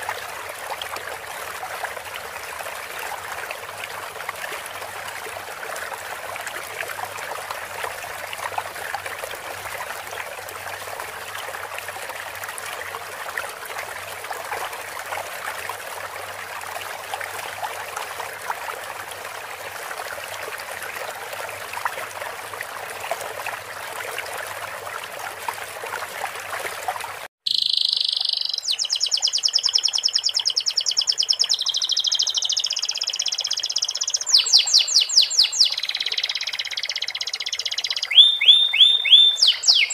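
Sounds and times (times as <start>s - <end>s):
running water: 0.0s - 39.9s
canary singing trills: 27.5s - 39.9s.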